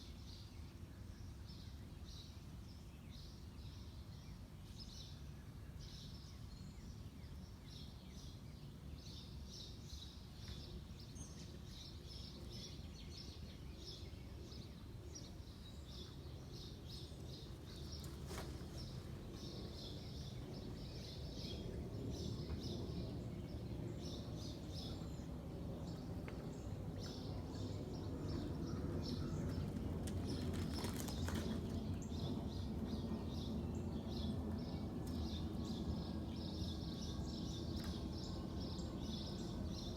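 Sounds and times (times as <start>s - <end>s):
small birds chirping: 0.1s - 39.9s
low steady rumble: 10.6s - 39.9s.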